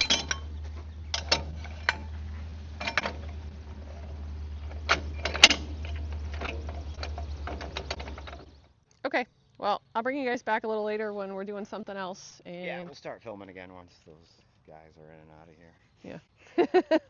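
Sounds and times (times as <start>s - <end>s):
equipment clicks and knocks: 0.0s - 8.7s
steady low hum: 0.0s - 17.0s.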